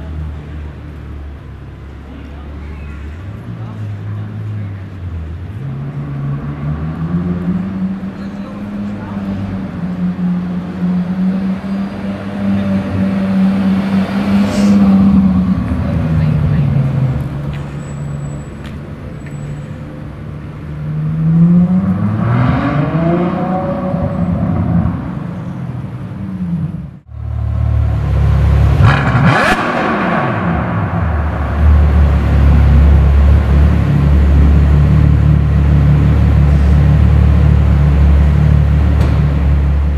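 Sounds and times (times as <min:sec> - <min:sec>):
car engine accelerating: 0:03.3 - 0:39.9
steady low drone: 0:30.0 - 0:39.9.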